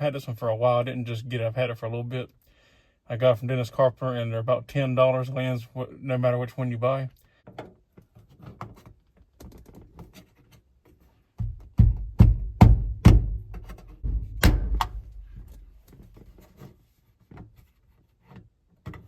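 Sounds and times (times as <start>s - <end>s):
low handling rumble: 14.0s - 15.9s.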